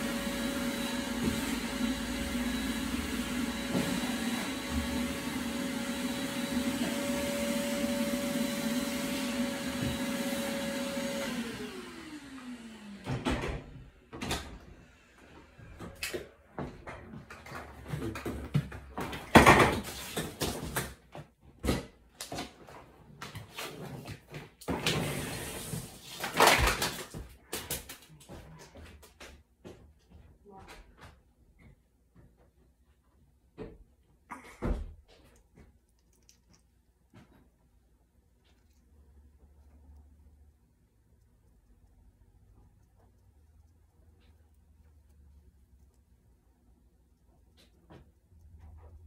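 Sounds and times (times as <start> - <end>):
vacuum cleaner running: 0.0 - 16.3, 24.6 - 27.1.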